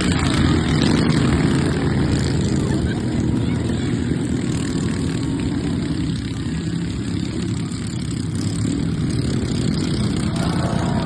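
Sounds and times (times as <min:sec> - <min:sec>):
lawnmower engines droning: 0:00.0 - 0:11.0.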